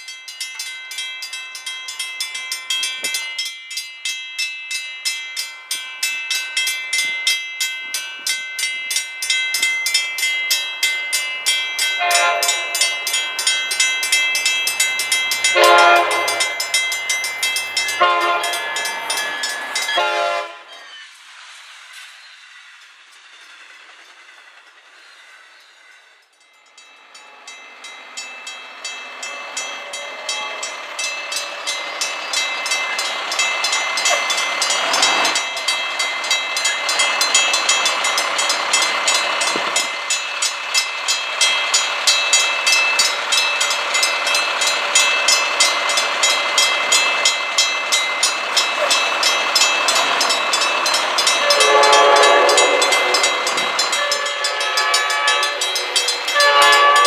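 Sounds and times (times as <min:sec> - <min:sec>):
railroad crossing bell ringing: 0:00.0 - 0:21.2, 0:25.0 - 0:57.0
train approaching: 0:00.0 - 0:57.0
locomotive horn blasts: 0:12.0 - 0:12.8, 0:15.5 - 0:16.6, 0:18.0 - 0:18.6, 0:20.0 - 0:20.7, 0:51.4 - 0:57.0.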